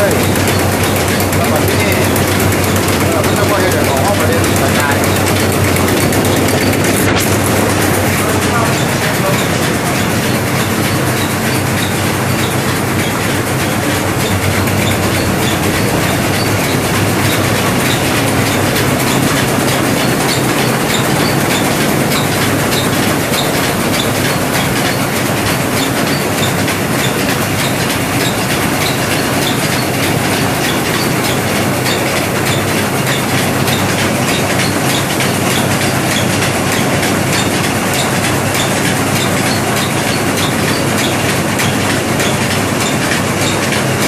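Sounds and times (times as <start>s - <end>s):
rice milling machine running: 0.0s - 44.0s.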